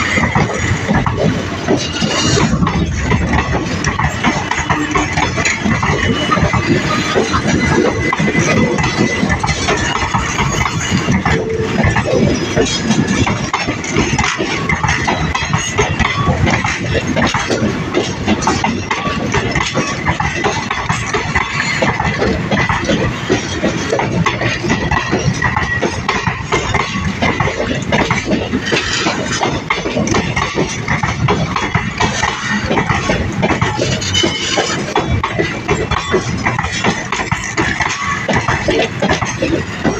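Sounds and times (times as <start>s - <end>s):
train wheels clattering over rail joints: 0.0s - 39.9s.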